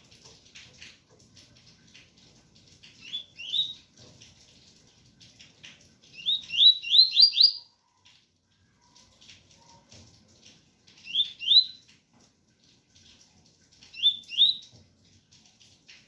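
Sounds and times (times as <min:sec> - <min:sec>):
faint rain: 0:00.0 - 0:16.0
bird singing whistled notes: 0:03.0 - 0:03.8, 0:06.2 - 0:07.6, 0:11.1 - 0:11.8, 0:14.0 - 0:14.6.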